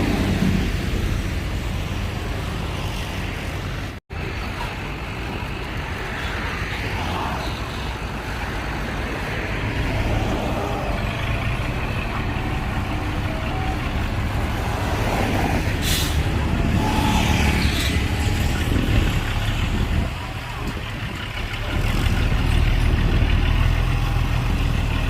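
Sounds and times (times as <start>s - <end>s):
heavy diesel engines running: 0.0s - 25.0s.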